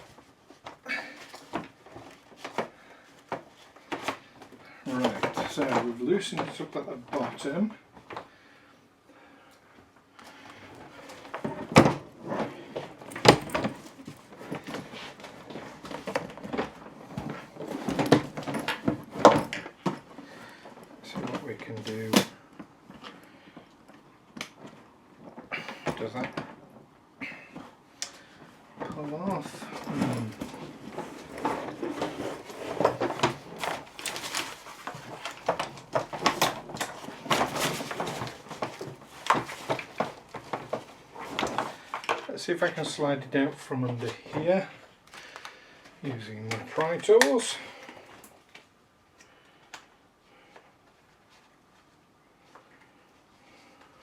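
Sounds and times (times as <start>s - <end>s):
suitcase handle knocking and rattling: 12.9s - 20.1s.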